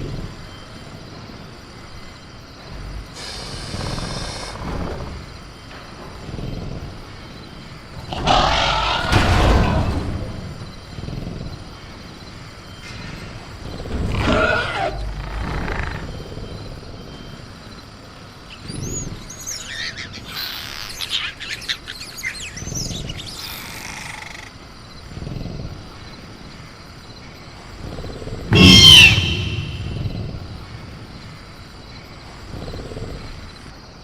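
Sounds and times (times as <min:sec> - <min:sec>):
jungle night background: 0:00.0 - 0:34.0
dinosaur growling: 0:08.0 - 0:11.9, 0:27.7 - 0:31.1
high gliding chirps and screeches: 0:28.5 - 0:30.7.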